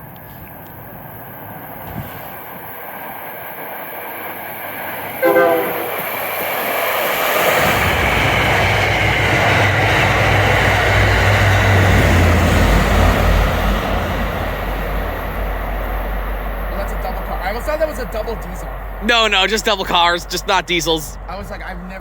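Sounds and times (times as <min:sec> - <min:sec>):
train rumbling past on rails: 0:00.0 - 0:22.0
train horn blast: 0:05.2 - 0:06.5.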